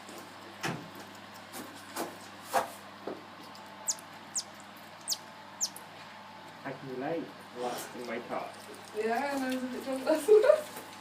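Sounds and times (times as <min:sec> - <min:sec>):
monkeys giving high-pitched calls: 0:03.9 - 0:05.8.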